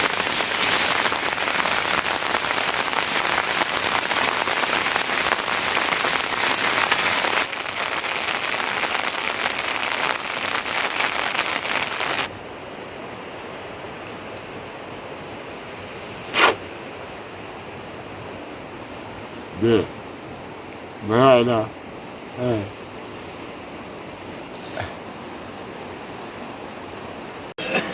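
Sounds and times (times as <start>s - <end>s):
heavy rain falling: 0.0s - 12.3s
insect chirping in a fast pulse: 0.0s - 27.5s.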